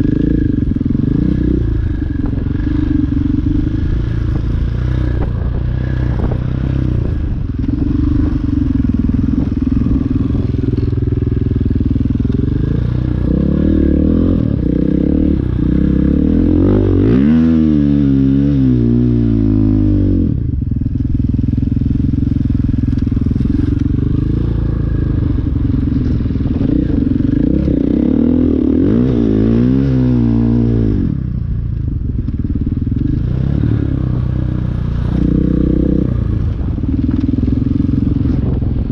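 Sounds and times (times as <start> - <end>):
dirt bike engine revving: 0.0 - 20.4, 21.0 - 31.2, 32.5 - 38.9.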